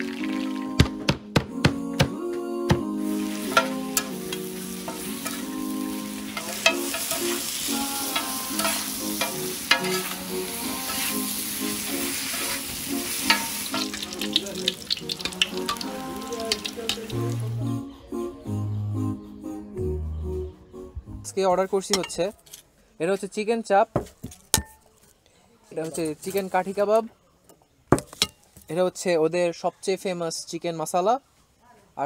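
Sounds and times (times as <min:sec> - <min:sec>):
chicken sizzling on a griddle: 0:03.0 - 0:17.5
metal spatulas clacking and scraping: 0:03.5 - 0:05.5, 0:06.3 - 0:11.2, 0:12.2 - 0:15.8, 0:21.8 - 0:22.7.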